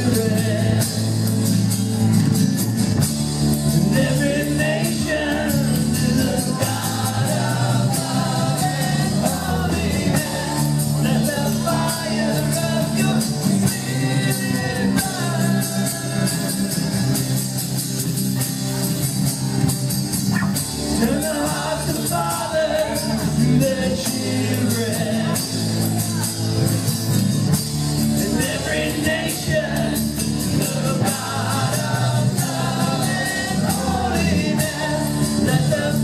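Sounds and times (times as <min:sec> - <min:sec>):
lead vocal singing: 0:00.0 - 0:01.2, 0:03.7 - 0:17.2, 0:20.8 - 0:26.0, 0:28.2 - 0:36.0
electric guitar: 0:00.0 - 0:36.0
keyboards: 0:00.0 - 0:36.0.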